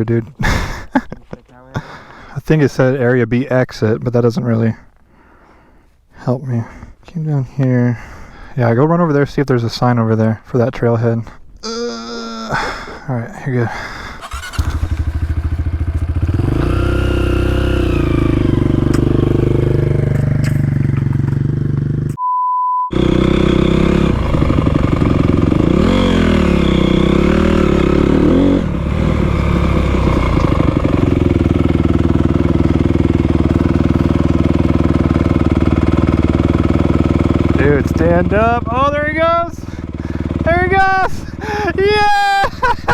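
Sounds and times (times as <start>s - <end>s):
dirt bike engine revving: 14.2s - 22.2s, 22.9s - 42.9s
short beep: 22.2s - 22.9s.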